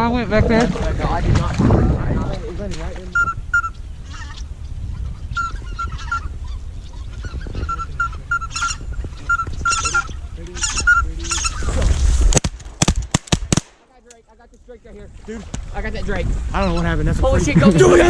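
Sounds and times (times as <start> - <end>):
wind rumbling on microphone: 0.0 - 12.8, 14.3 - 18.0
goose honking: 3.2 - 11.8.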